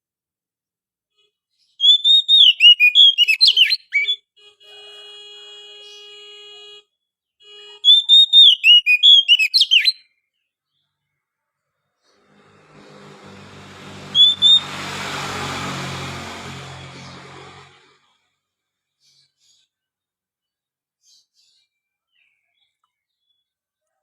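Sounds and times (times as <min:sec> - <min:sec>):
bird whistling song: 0:01.7 - 0:04.2, 0:07.8 - 0:10.1, 0:14.1 - 0:14.7.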